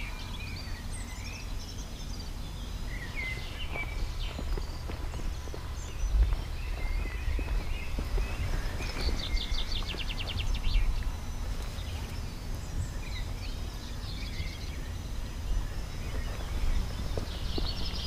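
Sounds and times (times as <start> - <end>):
bird trill: 0.0 - 18.0
songbirds chirping: 0.0 - 18.0
steady low rumble: 0.0 - 18.0.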